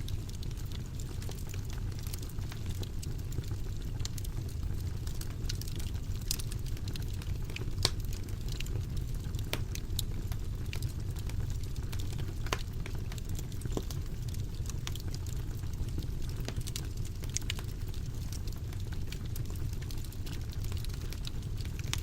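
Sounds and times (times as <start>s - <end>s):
fire flames rumbling: 0.0s - 22.0s
logs crackling and popping: 0.0s - 22.0s.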